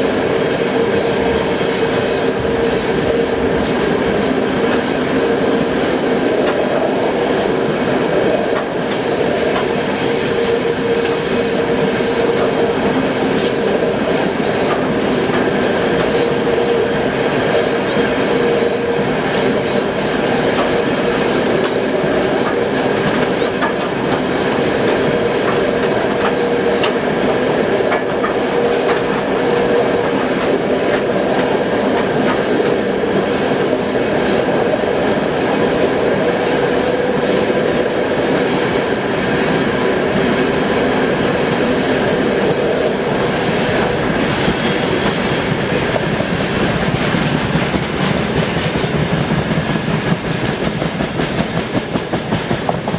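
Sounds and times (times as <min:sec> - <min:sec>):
train wheels clacking on rail joints: 0:00.0 - 0:52.9.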